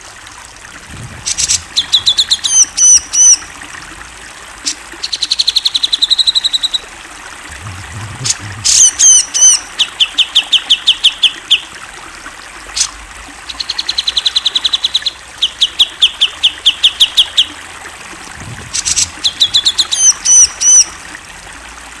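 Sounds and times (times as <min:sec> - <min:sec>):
bulbul singing falling notes: 0:01.2 - 0:03.6, 0:18.5 - 0:21.1
higher looping bird chirps: 0:01.3 - 0:03.4, 0:07.6 - 0:11.6, 0:13.6 - 0:17.5, 0:18.6 - 0:21.0.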